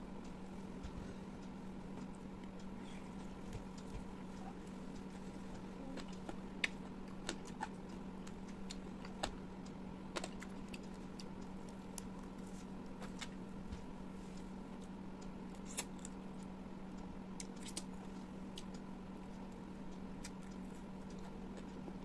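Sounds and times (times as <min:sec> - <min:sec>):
steady low hum: 0:00.0 - 0:22.0
chewing and mouth smacks: 0:02.0 - 0:09.4, 0:10.1 - 0:13.4, 0:14.8 - 0:16.5, 0:17.4 - 0:18.9, 0:20.2 - 0:22.0.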